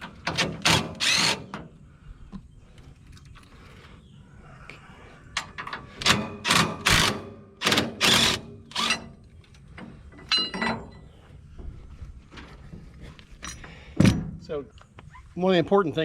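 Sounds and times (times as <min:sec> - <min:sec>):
ringing metal clink: 0:10.2 - 0:11.0.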